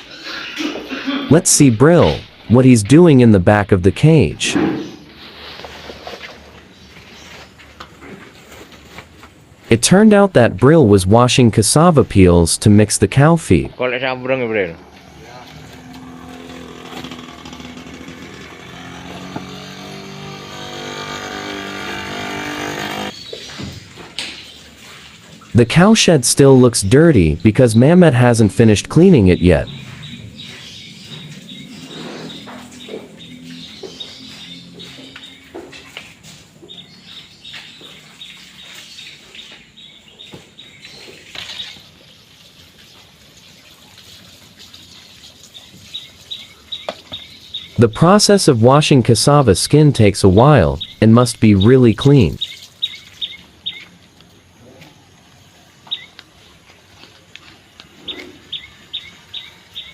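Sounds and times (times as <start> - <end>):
small engine running: 14.8 - 23.2.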